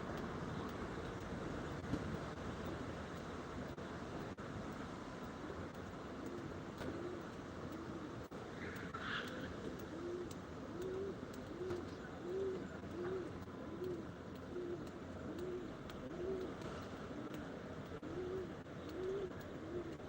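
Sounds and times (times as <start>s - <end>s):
pigeon cooing: 9.9s - 16.6s, 18.0s - 20.0s.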